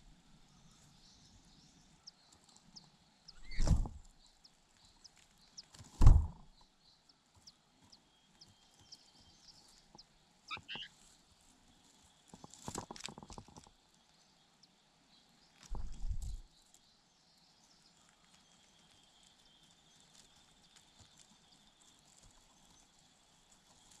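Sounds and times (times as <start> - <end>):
heavy thuds: 3.5 - 4.1, 6.0 - 6.5.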